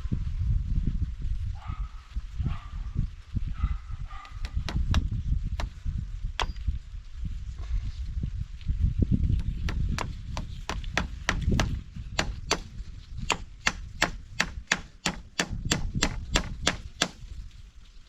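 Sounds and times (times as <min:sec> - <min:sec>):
sharp chopping strikes: 0:04.4 - 0:05.8, 0:06.4 - 0:06.6, 0:09.4 - 0:17.2.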